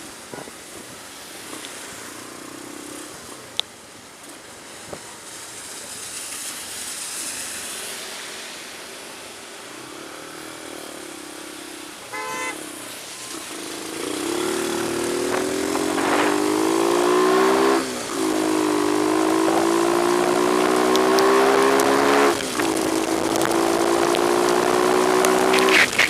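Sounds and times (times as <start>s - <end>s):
rain and road noise: 0.0s - 26.0s
vehicle engine accelerating: 9.2s - 26.0s
short horn toot: 12.0s - 12.6s.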